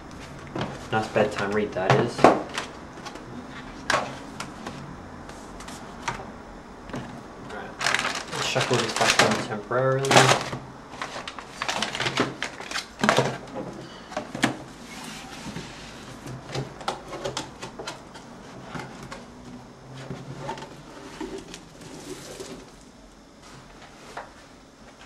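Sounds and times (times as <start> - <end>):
packaging rustling: 7.7 - 13.5.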